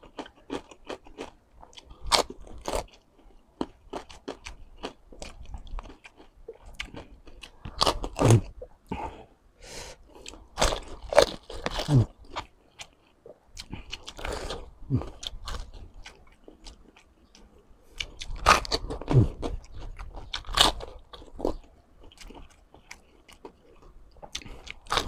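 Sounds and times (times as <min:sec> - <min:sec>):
crunching crispy pork skin: 0:18.0 - 0:23.6.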